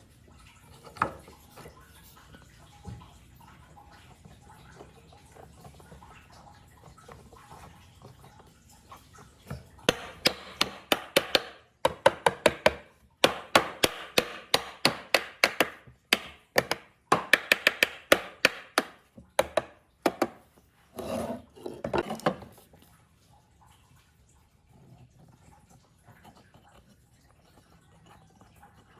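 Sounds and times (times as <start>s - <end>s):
sharp knocks on wood: 9.9s - 20.4s.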